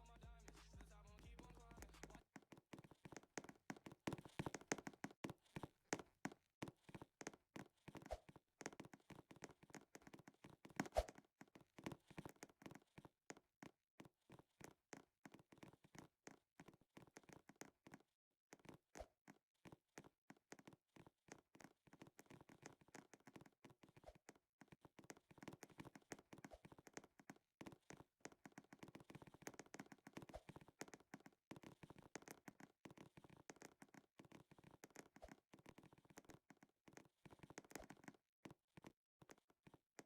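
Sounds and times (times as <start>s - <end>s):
faint taps and clicks: 0.4s - 40.0s.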